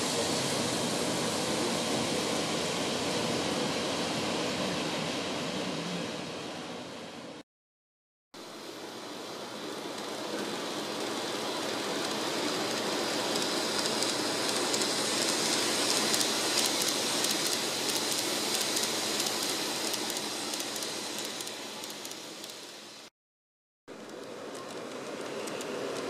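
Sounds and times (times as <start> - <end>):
model train rolling rattle: 8.7 - 22.8, 23.9 - 26.0.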